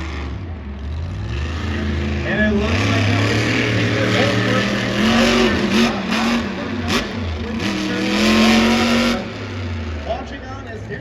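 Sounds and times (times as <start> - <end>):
monster truck engines revving: 0.0 - 11.0.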